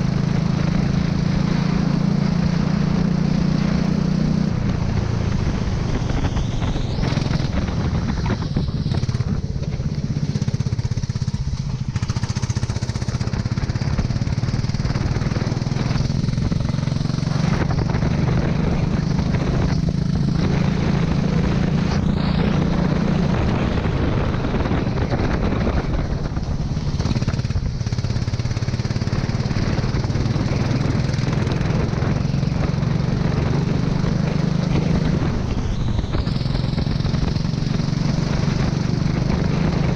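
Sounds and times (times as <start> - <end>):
go-kart engine running: 0.0 - 39.9
hiss of wind and spray: 13.8 - 39.9.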